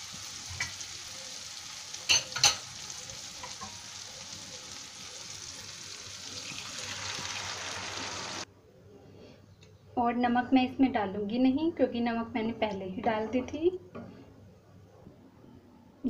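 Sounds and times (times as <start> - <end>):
beans poured into sizzling pan: 0.0 - 8.4
masala sizzling in hot oil: 0.0 - 8.5.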